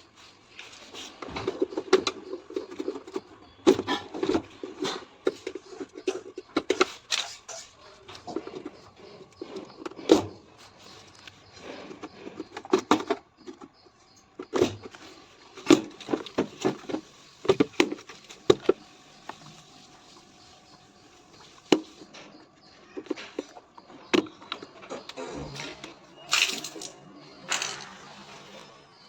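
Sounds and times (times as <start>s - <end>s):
hand tools knocking and scraping: 0.0s - 28.4s.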